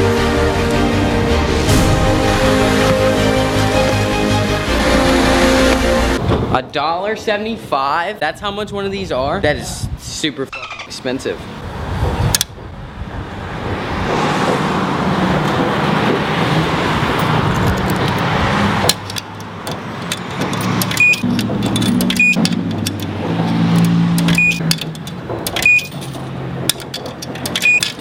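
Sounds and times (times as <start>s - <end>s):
loud rushing noise: 0.0s - 6.6s, 11.5s - 18.9s, 19.8s - 25.4s
coins clinking into machine: 19.7s - 28.0s
short high beeps: 24.3s - 24.6s.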